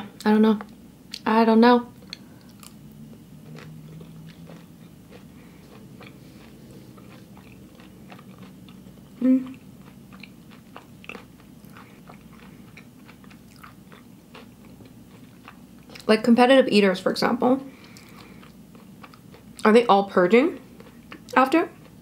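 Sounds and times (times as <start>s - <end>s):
person chewing food: 2.0s - 16.1s, 17.8s - 19.6s, 20.6s - 22.0s.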